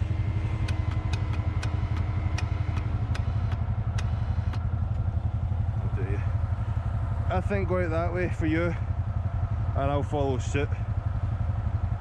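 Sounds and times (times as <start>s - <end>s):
faint whine: 0.0s - 8.7s
atv engine idling: 0.0s - 12.0s
sharp ticks: 0.3s - 5.1s.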